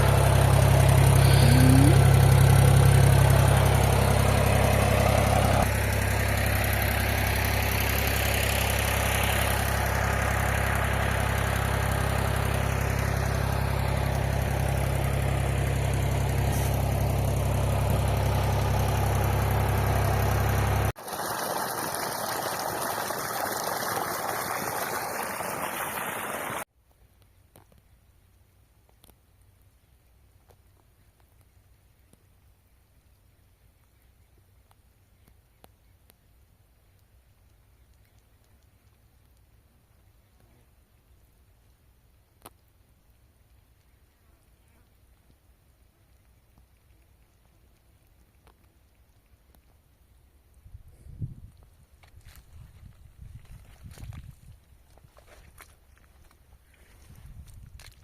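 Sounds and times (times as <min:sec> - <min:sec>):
tractor engine running: 0:00.0 - 0:26.6.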